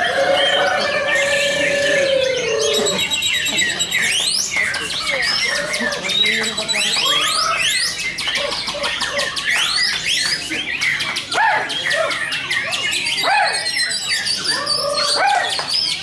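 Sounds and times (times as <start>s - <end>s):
birds whistling songs: 0.0s - 16.0s.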